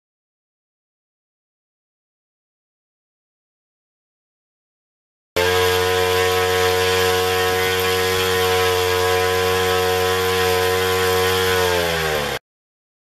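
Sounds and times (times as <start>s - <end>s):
two-stroke engine with propeller: 5.4s - 12.4s.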